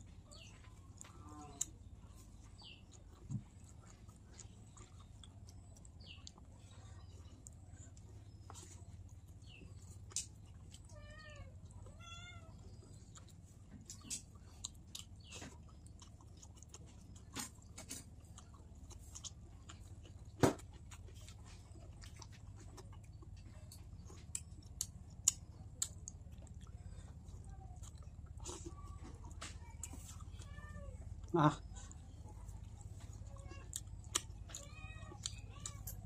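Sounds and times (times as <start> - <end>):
wet chewing: 0.0 - 36.0
cat meowing: 10.9 - 12.6.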